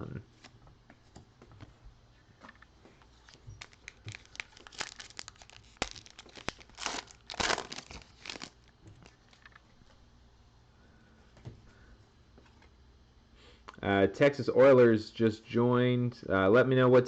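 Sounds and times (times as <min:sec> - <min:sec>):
plastic wrapper crinkling and tearing: 0:03.2 - 0:09.5.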